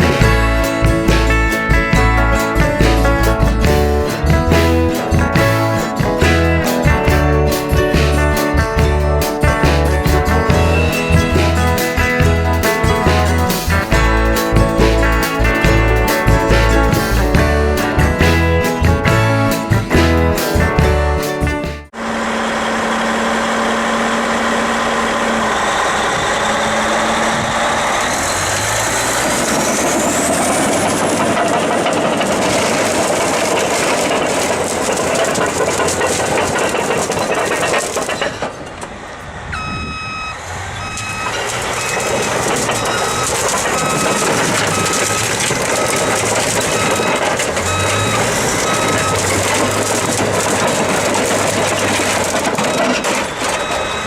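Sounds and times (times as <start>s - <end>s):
reversing alarm beeping: 0.0s - 21.0s, 39.5s - 54.0s
heavy diesel machinery running: 0.0s - 54.0s.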